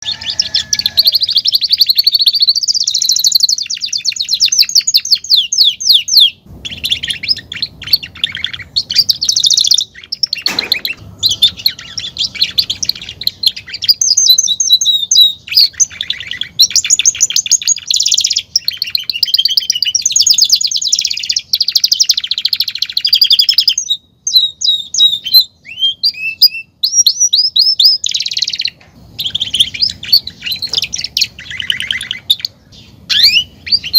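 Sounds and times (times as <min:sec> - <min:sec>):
canary singing trills and chirps: 0:00.0 - 0:33.9.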